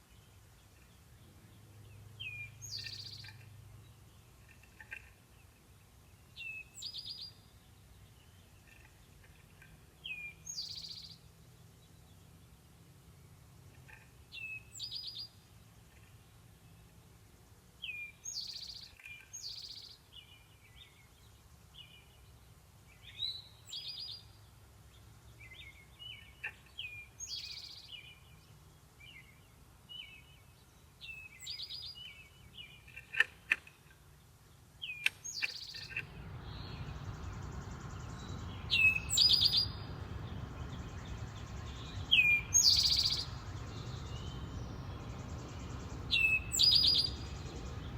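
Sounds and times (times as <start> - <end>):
soft bird chirps: 0.0 - 12.6, 17.8 - 34.0, 34.8 - 47.9
songbird loud call: 25.4 - 28.4, 34.8 - 47.9.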